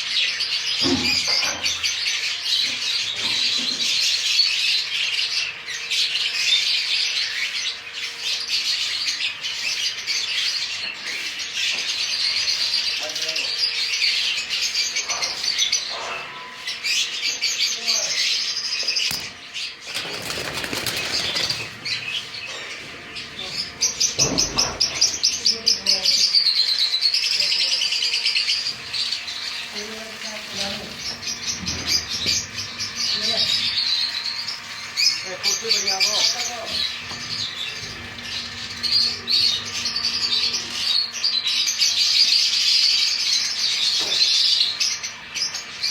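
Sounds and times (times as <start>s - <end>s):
small birds chirping: 0.0s - 45.9s
wings flapping: 19.1s - 22.0s.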